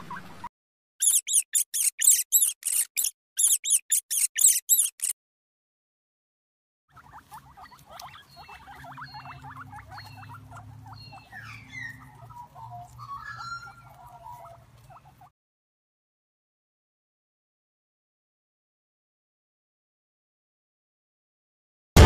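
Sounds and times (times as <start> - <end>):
rodent chirping and squeaking: 1.0 - 5.2, 6.9 - 15.3.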